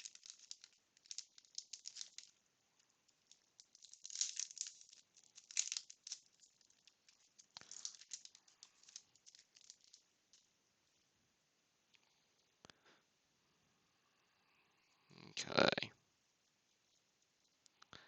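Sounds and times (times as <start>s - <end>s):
paper pack crinkling: 0.0s - 10.5s.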